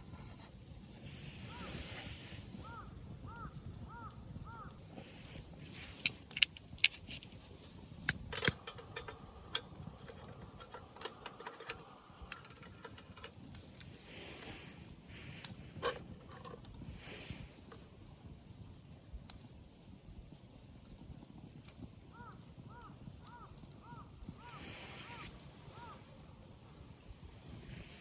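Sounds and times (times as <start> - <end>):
metal clinks and knocks: 8.3 - 13.4.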